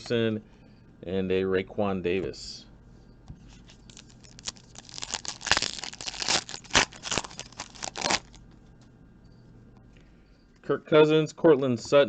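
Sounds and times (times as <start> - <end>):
wrapper crinkling: 3.5 - 8.5.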